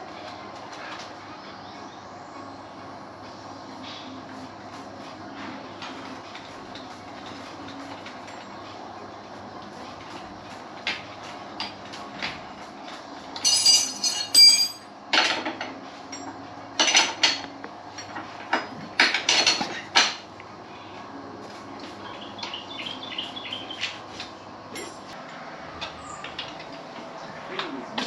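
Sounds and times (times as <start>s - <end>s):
metal tools clinking and clanking: 13.4s - 20.2s, 24.7s - 25.2s.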